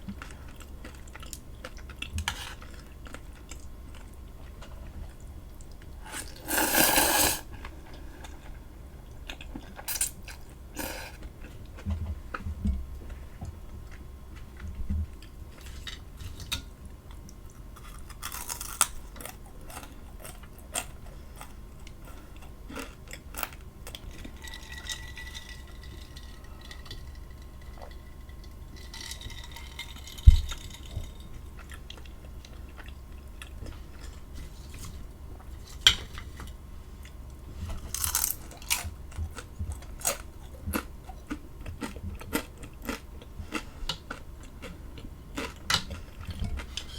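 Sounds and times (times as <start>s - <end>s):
person chewing food: 0.1s - 15.9s, 17.3s - 24.4s, 31.6s - 34.3s, 37.8s - 46.9s.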